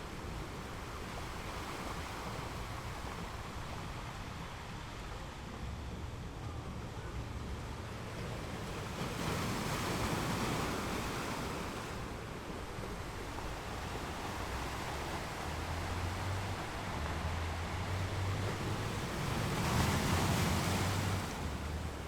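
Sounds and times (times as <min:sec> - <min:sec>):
ocean waves breaking on rocks: 0:07.5 - 0:22.0.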